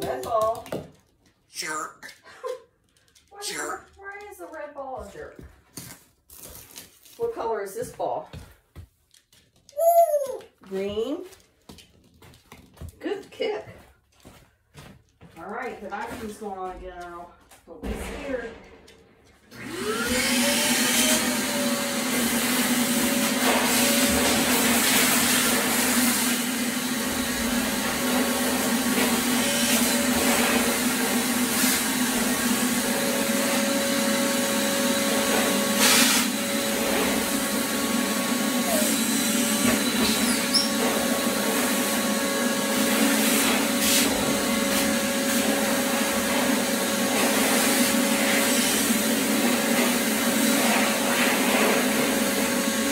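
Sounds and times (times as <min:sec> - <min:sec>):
vacuum cleaner running: 0:00.0 - 0:00.6, 0:19.4 - 0:52.9.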